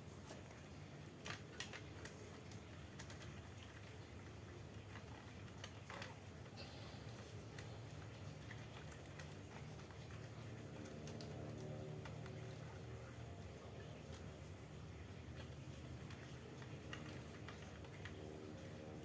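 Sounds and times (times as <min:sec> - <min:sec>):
faint clicks and taps: 0:00.0 - 0:19.0
low steady hum: 0:00.0 - 0:19.0.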